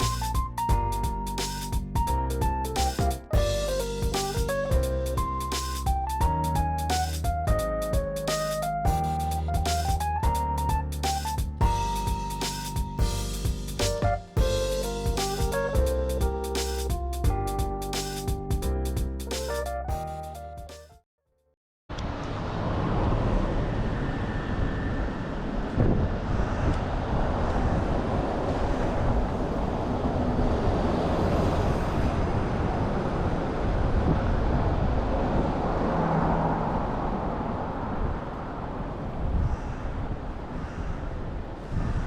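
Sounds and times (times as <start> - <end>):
street traffic: 21.9 - 39.4
strong wind buffeting microphone: 22.3 - 42.0.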